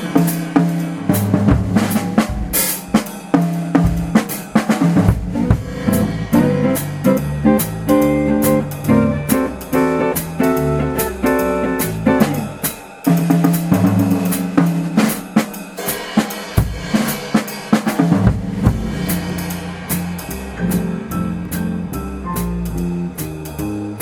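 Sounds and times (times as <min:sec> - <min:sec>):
drum kit playing: 0:00.0 - 0:24.0
guitar playing: 0:01.7 - 0:12.6.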